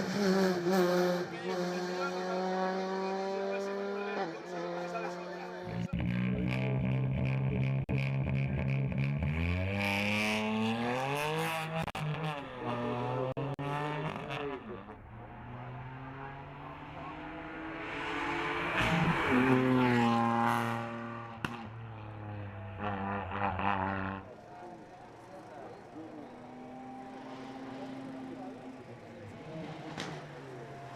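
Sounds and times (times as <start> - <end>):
racing car engine revving: 0.0 - 30.9.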